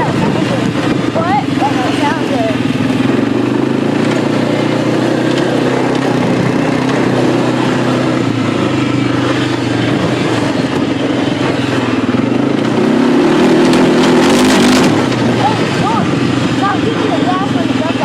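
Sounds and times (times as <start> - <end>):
atv engine running: 0.0 - 18.0.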